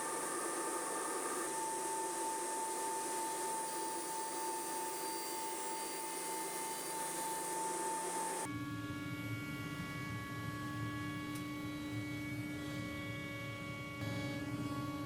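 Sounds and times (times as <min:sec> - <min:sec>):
panel saw whining: 0:00.0 - 0:08.5.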